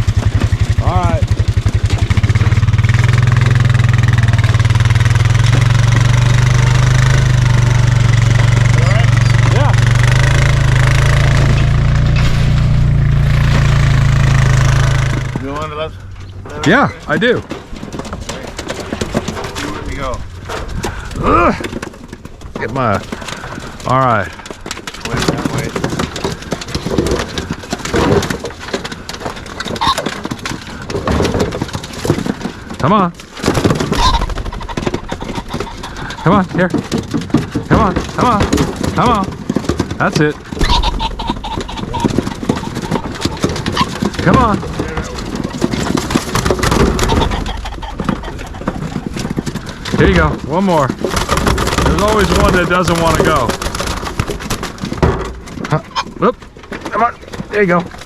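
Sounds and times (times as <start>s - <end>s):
birds scuffling in a box: 0.0s - 12.4s, 13.2s - 58.0s
vehicle engine running: 0.0s - 25.7s.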